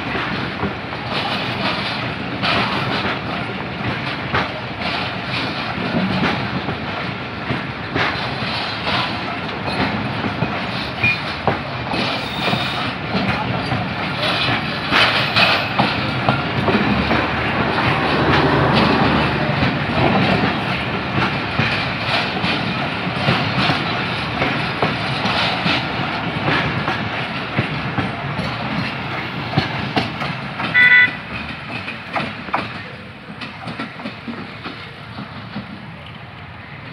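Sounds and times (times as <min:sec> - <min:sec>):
train wheels clattering over rail joints: 0:00.0 - 0:36.9
short high train toot: 0:30.7 - 0:31.3.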